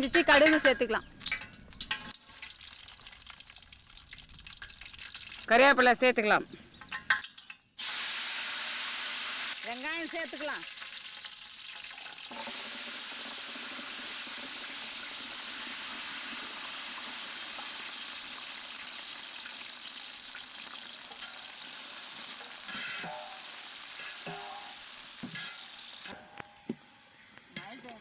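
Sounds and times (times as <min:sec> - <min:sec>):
stirring knocks and scrapes: 0:00.0 - 0:03.1, 0:06.6 - 0:07.7, 0:21.1 - 0:28.0
onions sizzling in oil: 0:07.8 - 0:28.0.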